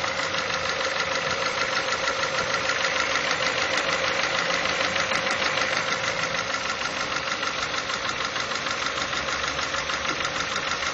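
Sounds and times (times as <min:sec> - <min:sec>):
car engine idling: 0:00.0 - 0:10.9
rapid ticking engine clatter: 0:00.0 - 0:10.9.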